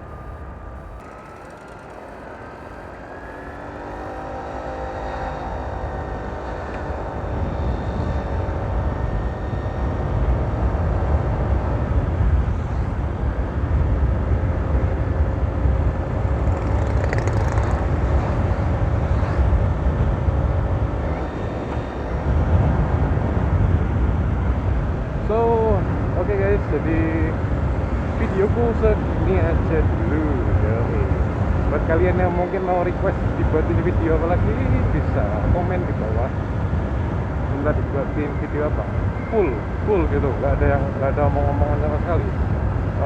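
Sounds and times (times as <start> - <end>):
scooter engine running: 0.0 - 24.0
road rumble: 0.0 - 43.0
wind on microphone: 5.5 - 43.0.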